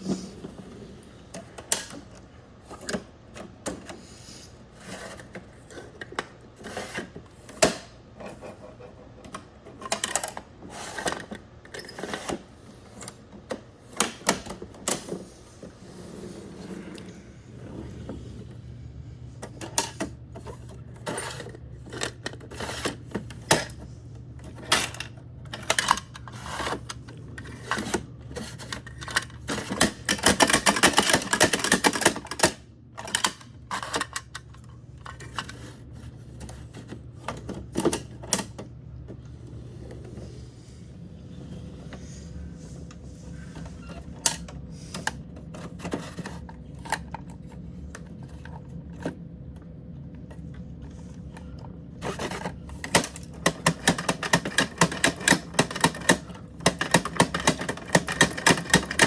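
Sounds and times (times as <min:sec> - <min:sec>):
steady low hum: 0:00.0 - 0:59.0
plastic toy trucks clattering: 0:24.5 - 0:34.4, 0:52.0 - 0:59.0.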